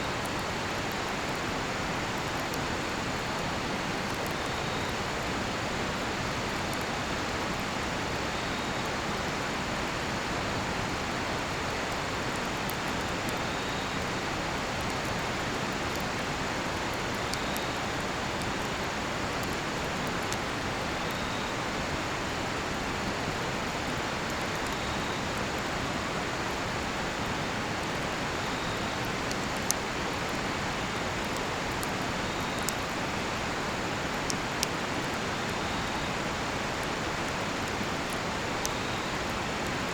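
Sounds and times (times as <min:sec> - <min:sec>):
insects chirping faintly: 0:00.0 - 0:23.8, 0:27.3 - 0:39.9
campfire popping: 0:00.1 - 0:22.1, 0:26.5 - 0:39.9.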